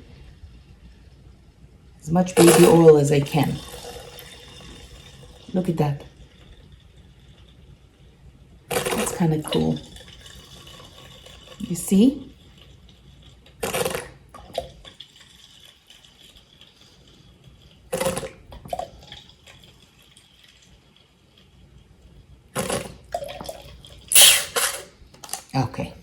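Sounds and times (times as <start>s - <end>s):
liquid drips: 0.0s - 25.6s
liquid sputtering from plastic bottle: 8.7s - 11.8s, 12.4s - 20.3s, 22.6s - 25.5s.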